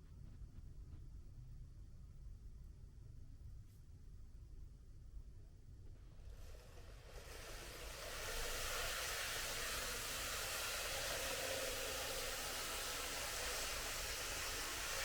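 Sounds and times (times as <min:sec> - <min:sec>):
model train whirring: 0:06.2 - 0:15.0.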